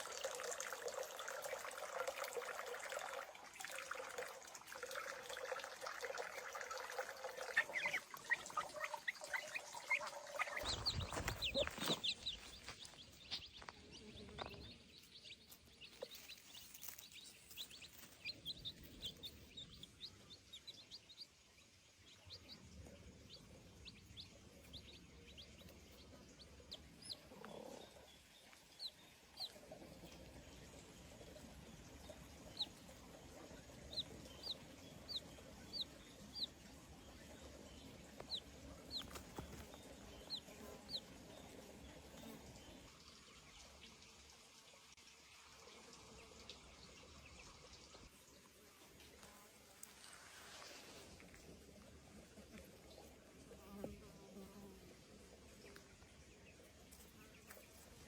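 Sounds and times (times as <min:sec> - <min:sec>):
chickens: 0:04.3 - 0:44.0
high bird chirps: 0:07.4 - 0:21.0.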